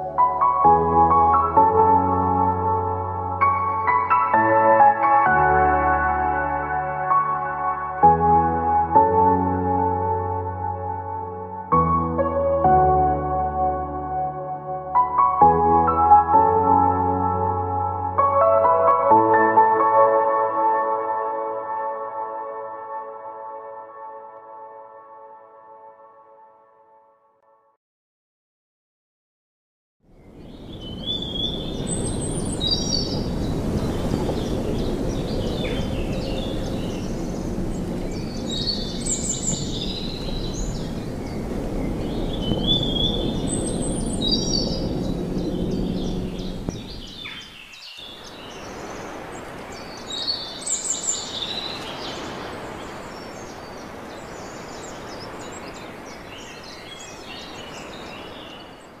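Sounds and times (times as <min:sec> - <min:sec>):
birds chirping: 0:30.2 - 0:59.0.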